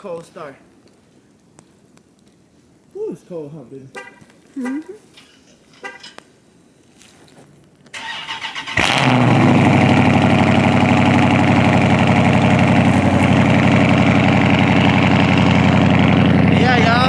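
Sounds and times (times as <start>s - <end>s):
car engine starting and idling: 8.0s - 17.0s
starter motor cranking: 8.0s - 17.0s.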